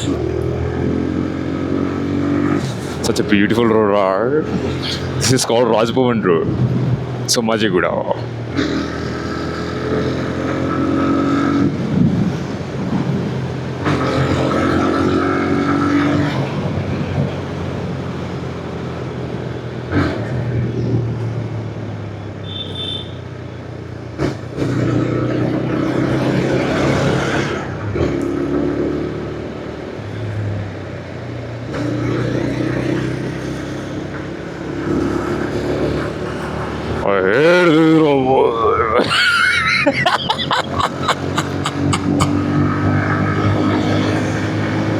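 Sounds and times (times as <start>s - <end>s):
wind noise: 11.6s - 13.4s.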